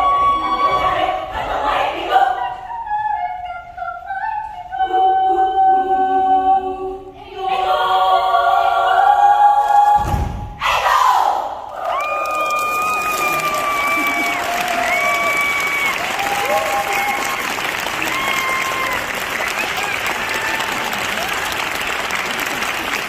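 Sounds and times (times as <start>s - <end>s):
children's choir singing: 0.0s - 11.7s
low thud: 10.0s - 10.6s.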